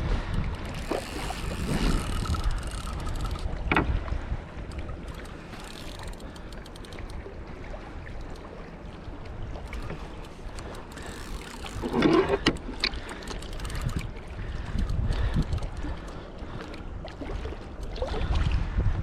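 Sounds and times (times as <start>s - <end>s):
wind on microphone: 0.0s - 6.2s, 13.6s - 19.0s
small ticks and knocks: 0.3s - 3.9s, 4.7s - 7.2s, 8.0s - 14.1s.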